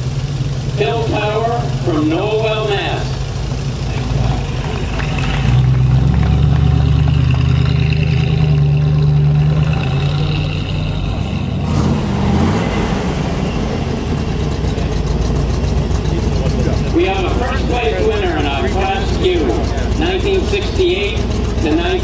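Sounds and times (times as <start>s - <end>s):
car engine passing by: 3.8s - 15.1s.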